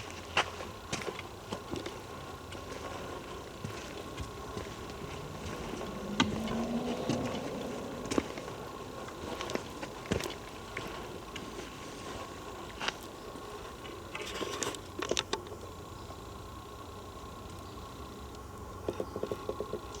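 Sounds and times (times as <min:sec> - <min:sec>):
footsteps on forest floor: 0:00.0 - 0:14.4
low buzz: 0:02.4 - 0:11.4.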